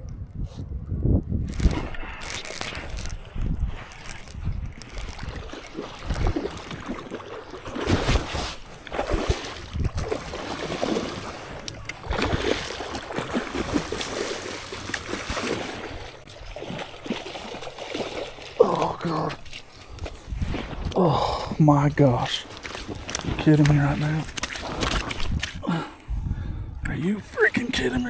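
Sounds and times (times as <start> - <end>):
wind buffeting microphone: 0.0 - 7.0, 7.8 - 16.8, 19.9 - 27.4
water splashing: 1.5 - 19.7, 22.0 - 25.8.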